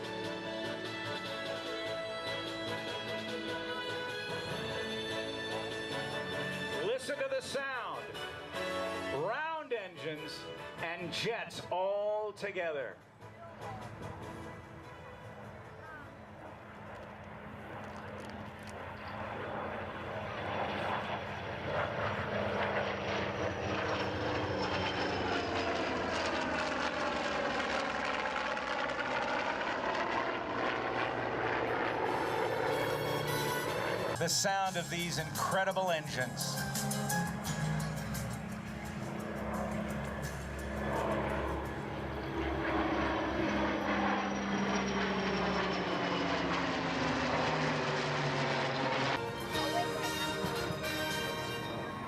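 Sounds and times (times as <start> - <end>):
aircraft flying past: 0.0 - 52.0
high engine whine: 13.0 - 52.0.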